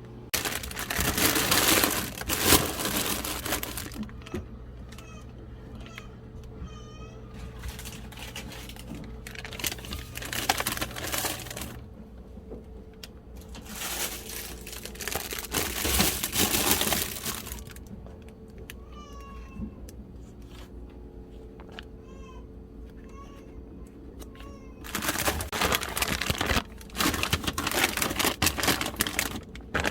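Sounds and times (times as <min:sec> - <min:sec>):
low steady hum: 0:00.0 - 0:29.9
crinkling and rustling: 0:00.3 - 0:06.5, 0:07.3 - 0:18.8, 0:19.5 - 0:22.0, 0:22.9 - 0:29.9
high-pitched whiny cries: 0:03.8 - 0:07.6.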